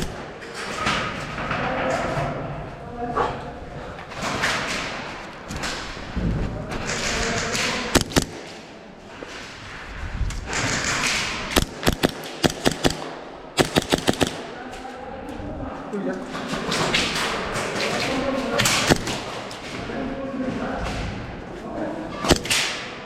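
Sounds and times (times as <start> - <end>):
airsoft guns firing: 6.8 - 8.7, 10.5 - 14.8, 16.4 - 19.7, 22.2 - 23.0.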